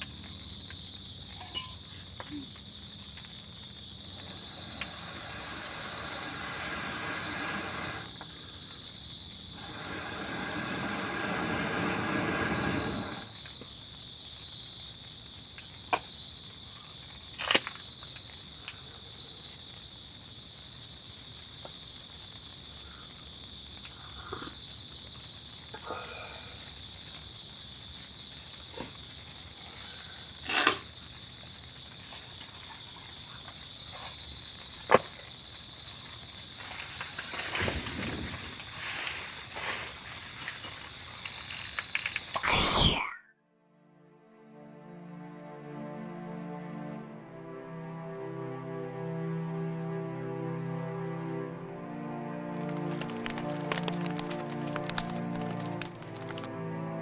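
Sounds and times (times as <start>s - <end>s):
insects chirping: 0.0s - 43.2s, 52.6s - 56.5s
rushing noise: 9.6s - 13.3s, 42.4s - 43.2s.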